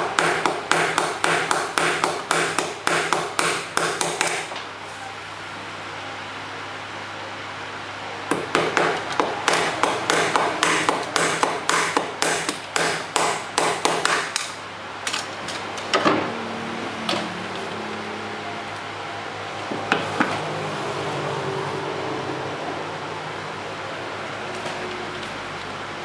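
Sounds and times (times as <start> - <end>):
hammer tapping on bamboo: 0.0 - 4.5, 8.3 - 14.5
steady low hum: 0.0 - 26.0.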